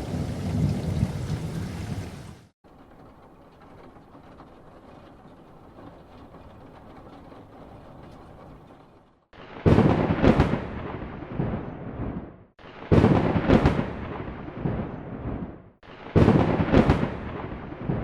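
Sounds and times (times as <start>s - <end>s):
rain hissing: 0.0s - 2.6s
thunder crack and rumble: 0.0s - 8.7s, 9.3s - 18.0s.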